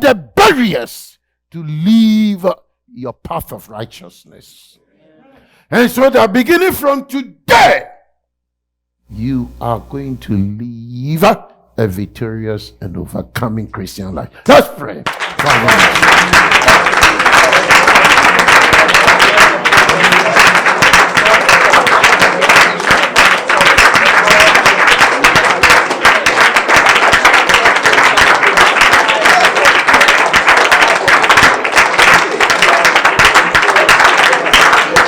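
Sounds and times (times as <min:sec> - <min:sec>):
congregation praying aloud: 0:05.8 - 0:08.0, 0:14.5 - 0:35.0
rapid hand clapping: 0:15.0 - 0:35.0.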